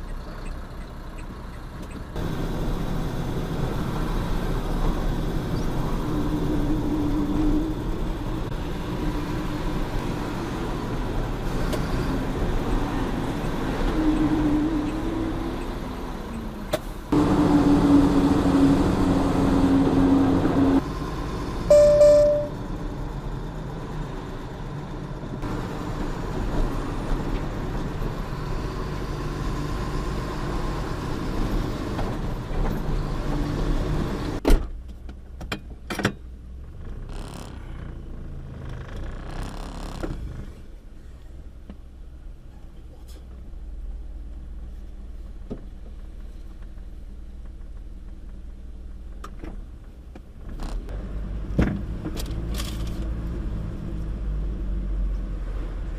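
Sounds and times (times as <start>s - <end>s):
truck engine and road noise: 0.0s - 55.9s
short loud pitched tone: 21.7s - 22.6s.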